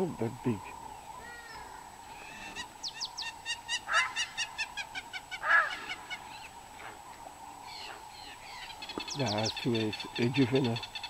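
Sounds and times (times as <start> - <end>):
birds calling rapidly: 0.0 - 11.0
harsh honking bird calls: 1.2 - 6.5.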